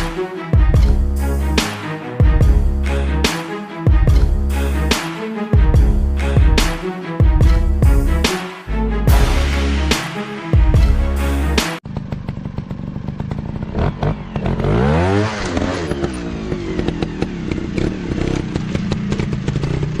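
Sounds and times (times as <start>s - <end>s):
music: 0.0s - 11.8s
dirt bike engine revving: 11.8s - 20.0s.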